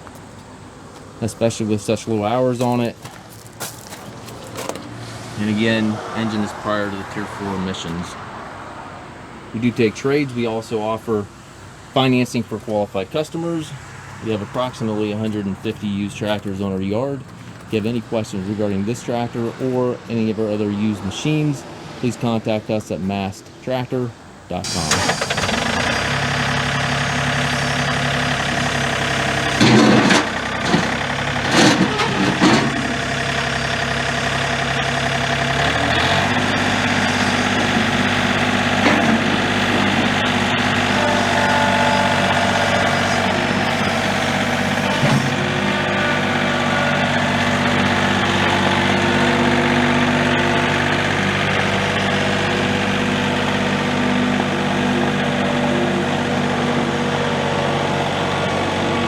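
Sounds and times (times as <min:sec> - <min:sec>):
tractor diesel engine running: 0:00.0 - 0:22.0, 0:24.3 - 0:59.0
loud clatters: 0:02.6 - 0:05.2, 0:28.9 - 0:53.2.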